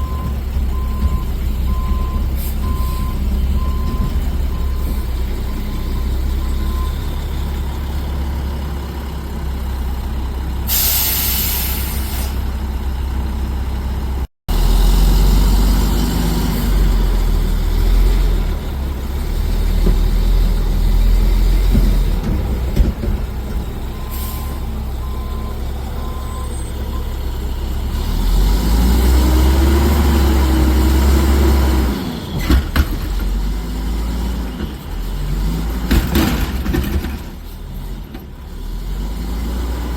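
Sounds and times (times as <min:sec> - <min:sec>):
reversing beeps: 0:00.0 - 0:07.6, 0:23.9 - 0:27.2
diesel engine rumbling: 0:00.0 - 0:39.9
air brake hiss: 0:10.7 - 0:12.5, 0:24.1 - 0:24.6.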